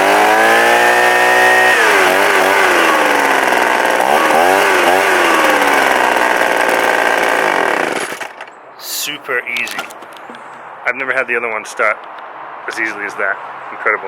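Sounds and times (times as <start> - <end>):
leaf blower engine revving: 0.0 - 8.3.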